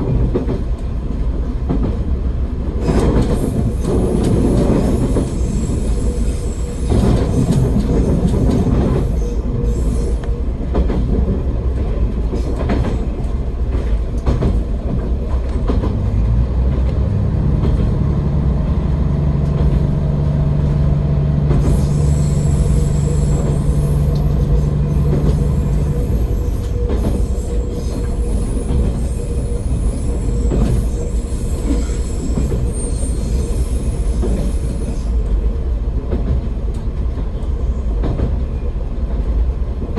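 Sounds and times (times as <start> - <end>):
diesel railcar engine rumble: 0.0 - 39.9
wheels clicking over rail joints: 10.2 - 29.2.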